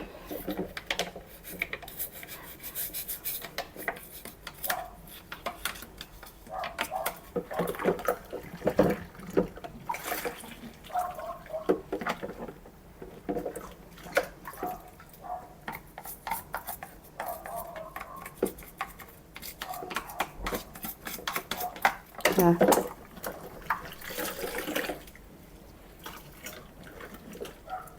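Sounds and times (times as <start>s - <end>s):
water splashing and dripping: 6.5s - 12.4s, 21.6s - 25.3s.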